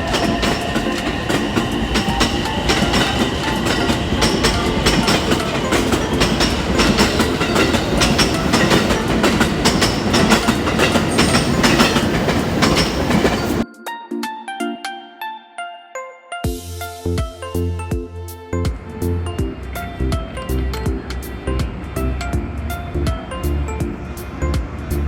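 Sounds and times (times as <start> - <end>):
train wheels clattering: 0.0 - 13.6.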